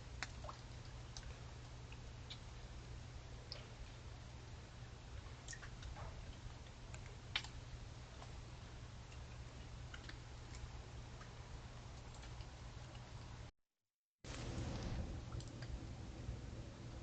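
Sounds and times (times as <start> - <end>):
low steady hum: 0.0 - 13.5, 14.3 - 17.0
faint irregular clicks: 5.4 - 13.5, 14.3 - 15.8.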